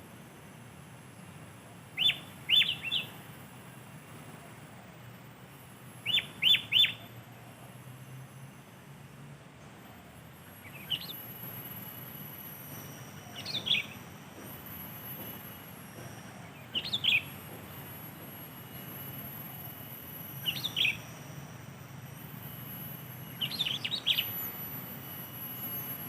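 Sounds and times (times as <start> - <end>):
bird calling: 2.0 - 3.2, 6.0 - 7.6, 10.5 - 11.3, 13.1 - 14.5, 15.2 - 17.8, 18.7 - 21.1, 23.2 - 24.6.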